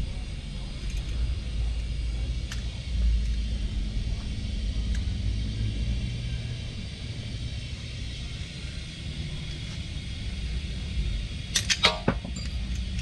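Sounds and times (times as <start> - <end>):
low rumble: 0.0 - 11.5
sharp metallic clinks: 11.5 - 13.0.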